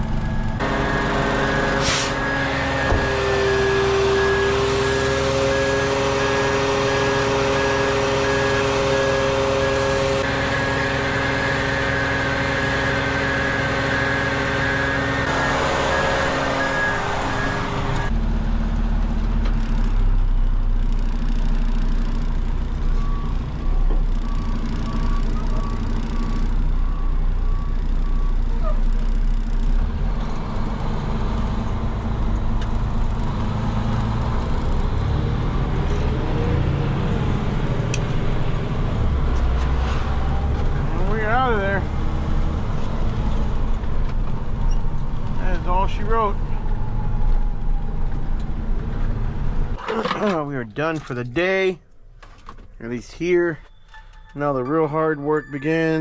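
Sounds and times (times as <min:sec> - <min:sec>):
truck engine running: 0:00.0 - 0:46.9
reversing alarm beeping: 0:10.2 - 0:18.1, 0:22.8 - 0:28.6, 0:53.6 - 0:56.0.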